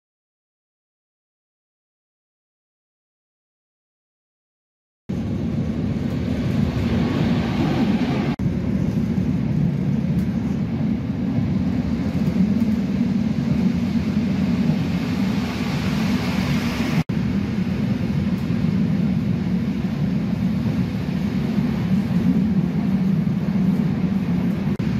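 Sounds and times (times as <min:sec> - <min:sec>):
train wheels rumbling on track: 0:05.1 - 0:24.9.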